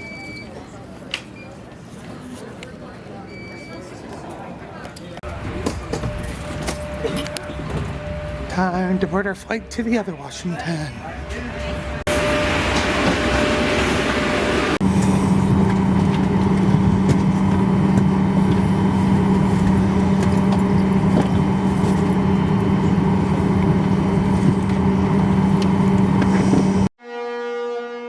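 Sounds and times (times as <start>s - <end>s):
jet engines roaring in cabin: 5.2s - 26.9s.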